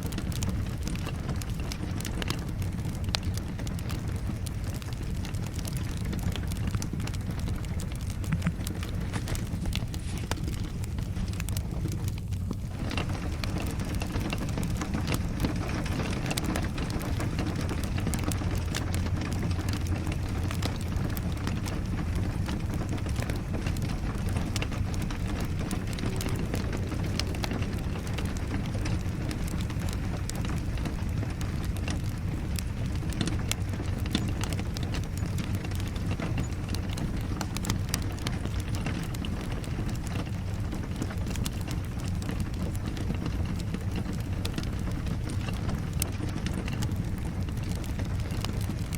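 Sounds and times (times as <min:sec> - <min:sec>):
steady rain: 0:00.0 - 0:48.9
wood fire crackling: 0:00.0 - 0:48.9.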